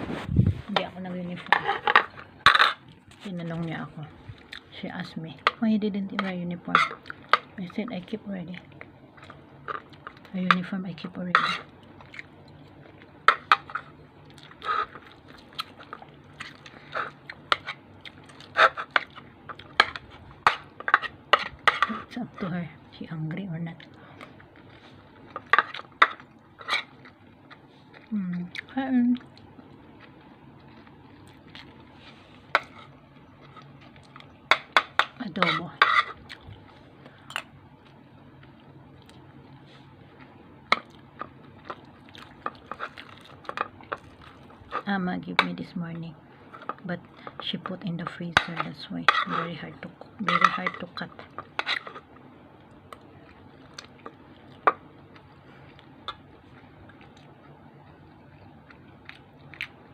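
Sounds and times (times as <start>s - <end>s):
low steady hum: 0.0s - 59.9s
person chewing food: 4.2s - 4.7s, 6.9s - 7.5s, 8.6s - 10.3s, 11.6s - 22.0s, 23.8s - 35.2s, 35.9s - 44.9s, 51.1s - 59.9s.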